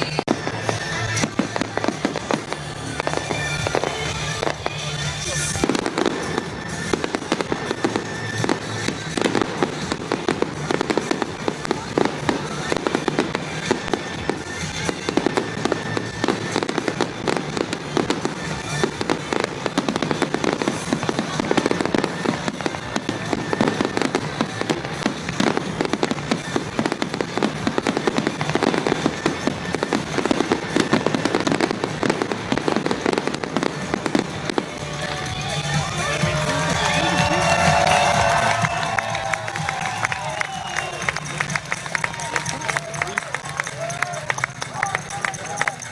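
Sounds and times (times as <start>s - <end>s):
fireworks banging and crackling: 0.0s - 45.9s.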